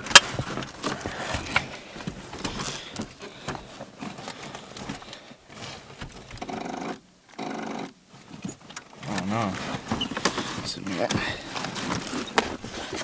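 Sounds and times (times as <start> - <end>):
car starter buzzing: 6.3 - 8.0.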